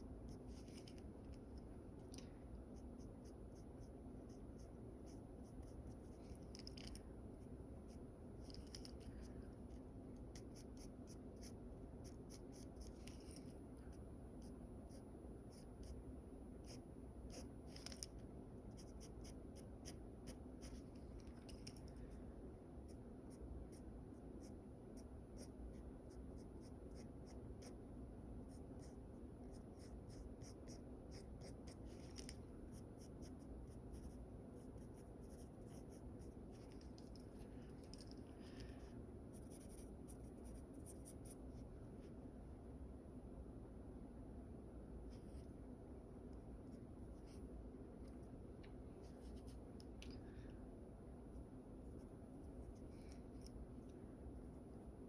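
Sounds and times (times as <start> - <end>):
low room hum: 0.0 - 55.0
pencil scratching on paper: 18.7 - 20.8, 28.5 - 36.9, 38.5 - 41.4.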